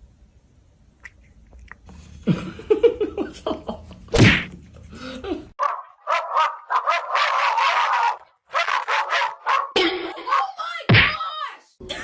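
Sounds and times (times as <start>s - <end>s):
dog barking: 5.6s - 9.8s.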